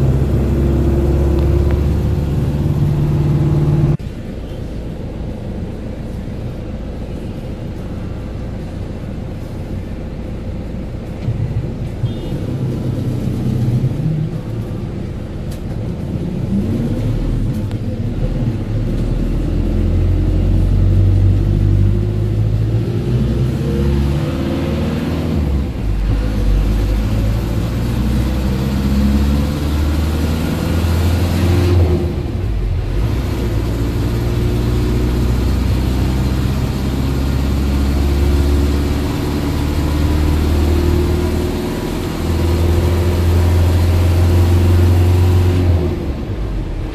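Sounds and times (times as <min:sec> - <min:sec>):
road noise: 0:00.0 - 0:46.9.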